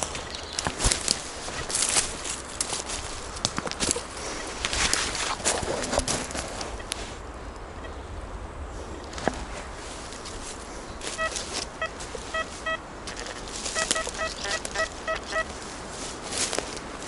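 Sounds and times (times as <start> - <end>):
rustling of leaves: 0.0 - 17.0
metal detector beeping: 11.1 - 15.5.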